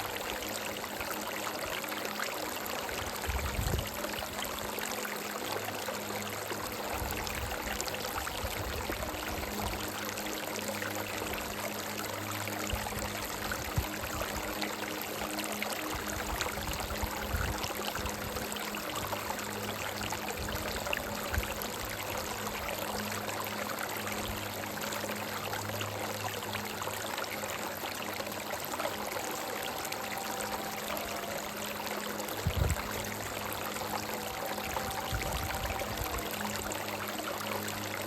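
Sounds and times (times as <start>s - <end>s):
stream running over rocks: 0.0s - 38.0s.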